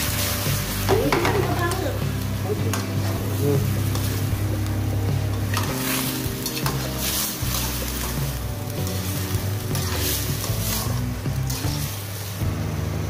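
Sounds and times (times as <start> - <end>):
background music: 0.0 - 13.0
food sizzling in a frying pan: 0.0 - 13.0
spatula scraping a pan: 2.6 - 12.4.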